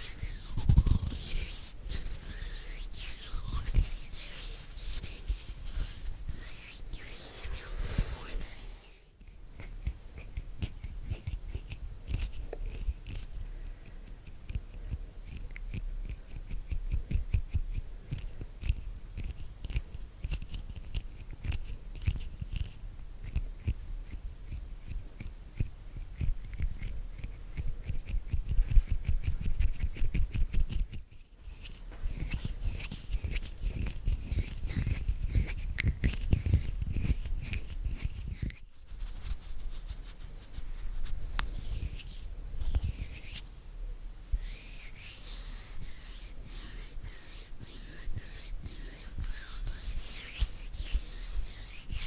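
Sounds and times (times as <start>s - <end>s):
hands rubbing skin: 0.0s - 13.4s, 14.3s - 43.5s, 44.2s - 52.0s.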